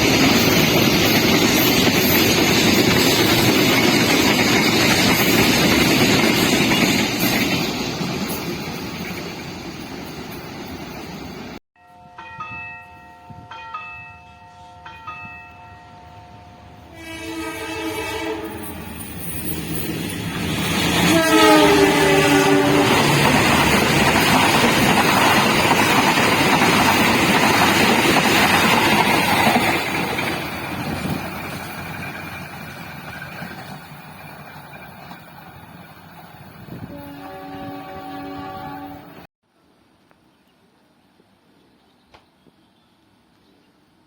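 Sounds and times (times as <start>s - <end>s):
train wheels and cars passing: 0.0s - 11.6s, 14.1s - 39.3s
station bell ringing: 11.8s - 16.9s
train horn blasts: 16.0s - 18.8s, 21.0s - 23.2s, 36.7s - 39.3s.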